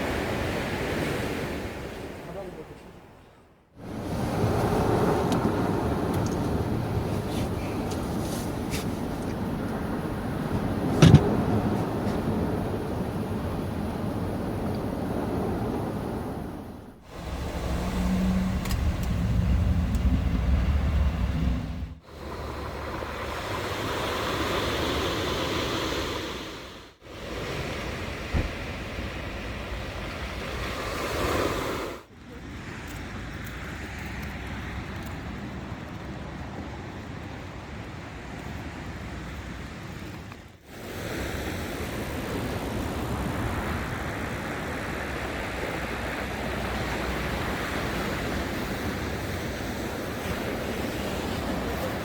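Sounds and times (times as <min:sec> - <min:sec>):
wind: 0:00.0 - 0:52.0
surf rushing: 0:03.8 - 0:32.1, 0:40.7 - 0:52.0
heavy low rumble: 0:15.8 - 0:23.4.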